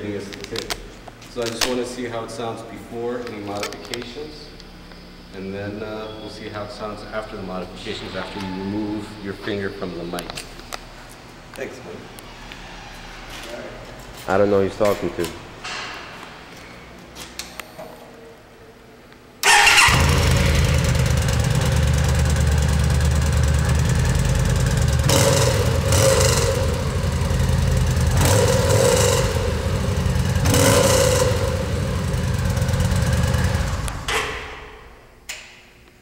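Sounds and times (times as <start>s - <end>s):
motorcycle engine starting and revving: 19.4s - 35.0s.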